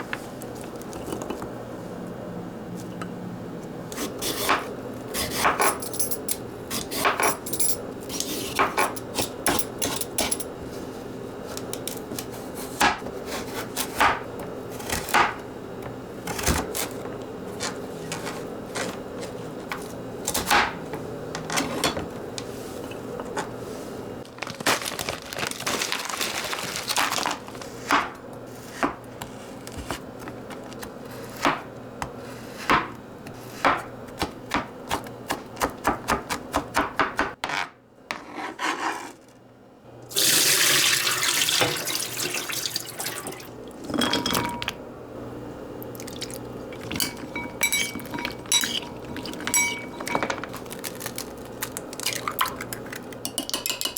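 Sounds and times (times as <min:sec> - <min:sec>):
dishes and utensils clinking: 0:07.0 - 0:10.6, 0:43.8 - 0:44.8, 0:46.0 - 0:50.8, 0:52.5 - 0:53.9
tap running: 0:41.0 - 0:44.0.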